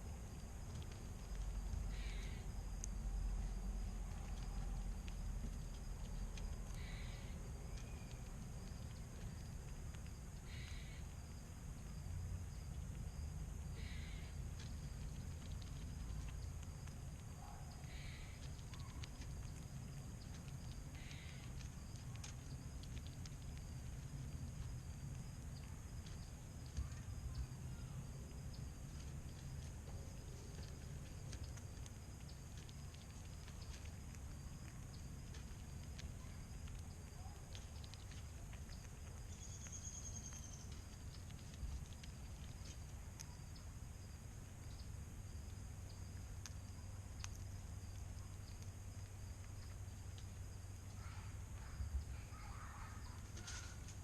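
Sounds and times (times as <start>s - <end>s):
low rumble: 0.0s - 37.2s
squirrels clicking and tapping nuts: 0.0s - 54.0s.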